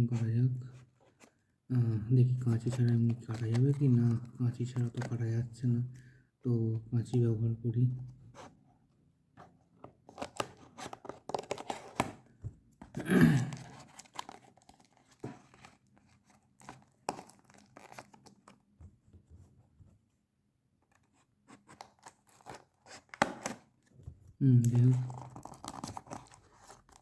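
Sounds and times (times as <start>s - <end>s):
scissors cutting packaging: 10.1s - 12.2s, 13.6s - 18.4s, 21.6s - 23.7s, 24.7s - 27.0s
packaging tearing: 13.3s - 18.5s.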